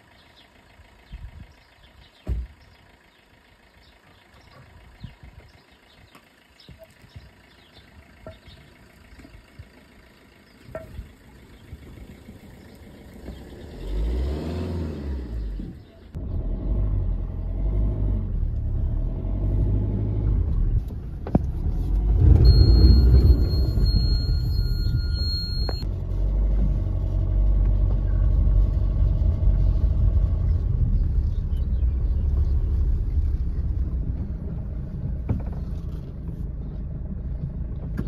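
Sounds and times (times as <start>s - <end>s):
car engine revving: 13.0s - 38.0s.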